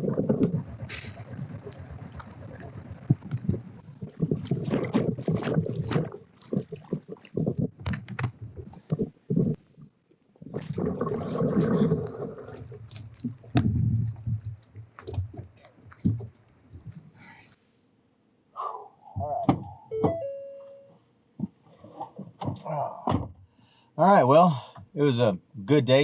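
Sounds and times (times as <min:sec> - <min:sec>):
kayak gear knocking and scraping: 0:00.0 - 0:09.7, 0:12.4 - 0:17.1.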